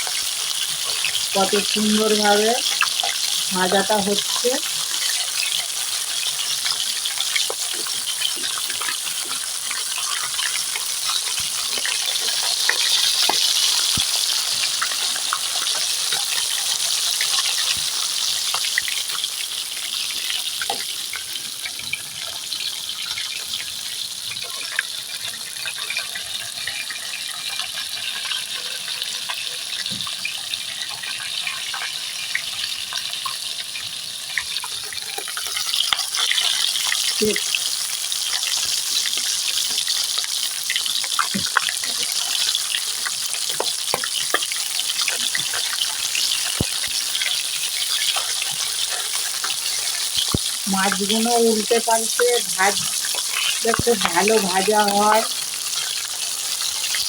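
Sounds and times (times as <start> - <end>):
fish sizzling in hot oil: 0.0 - 57.0
oil crackling and spitting: 34.6 - 57.0.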